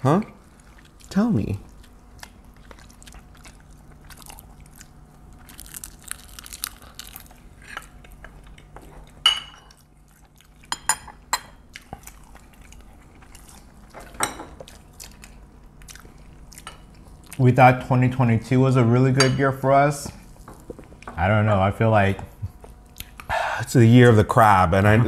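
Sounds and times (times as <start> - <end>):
chewing and crunching: 0.3 - 17.5, 22.3 - 23.3
spoons clinking against bowls: 9.2 - 9.8, 10.7 - 11.6, 19.2 - 19.5.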